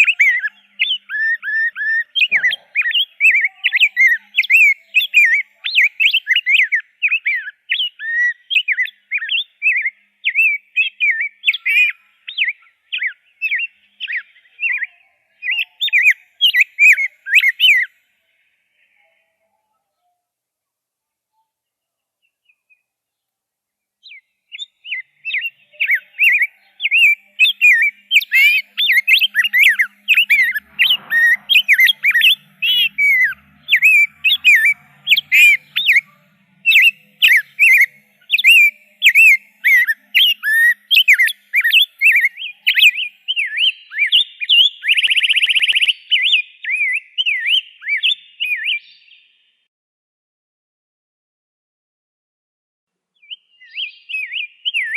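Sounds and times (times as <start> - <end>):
bird warbling song: 0.0 - 20.2, 24.0 - 49.7, 53.2 - 54.9
bird harsh buzz: 25.0 - 44.1.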